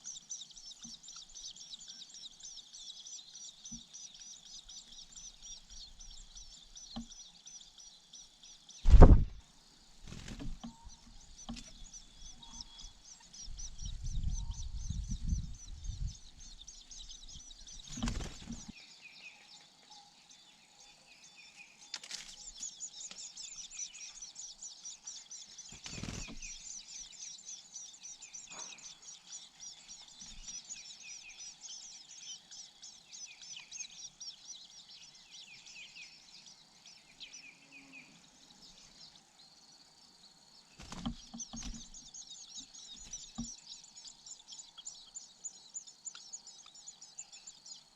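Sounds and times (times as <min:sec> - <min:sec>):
nestlings chirping: 0:00.0 - 0:18.8, 0:19.4 - 0:47.9
loud thump: 0:08.9 - 0:09.4.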